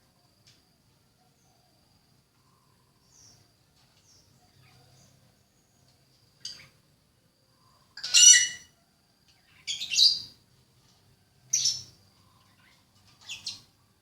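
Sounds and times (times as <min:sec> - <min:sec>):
bird calling: 0:08.0 - 0:08.7.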